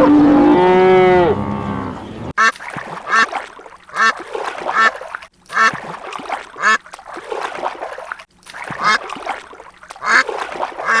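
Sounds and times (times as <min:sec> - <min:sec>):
ducks quacking: 0:01.3 - 0:05.8, 0:06.6 - 0:06.8, 0:08.8 - 0:09.0, 0:10.0 - 0:11.0
water splashing: 0:02.3 - 0:11.0.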